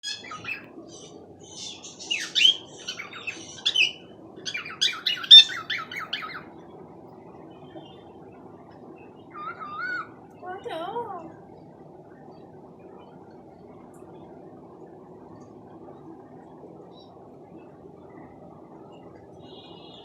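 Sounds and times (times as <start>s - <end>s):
cockatiel chirping and squawking: 0.0s - 0.7s, 1.6s - 6.4s, 9.3s - 10.1s.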